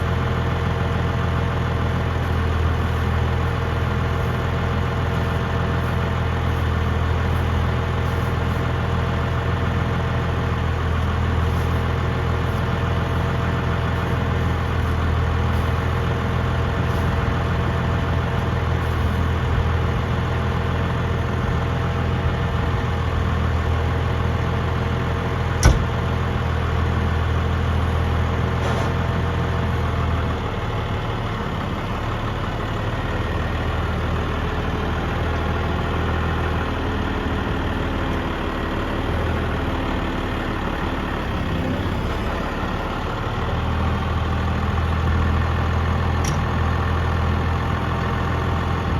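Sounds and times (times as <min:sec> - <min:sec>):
tractor engine idling: 0:00.0 - 0:48.9
sharp knock: 0:25.6 - 0:26.0.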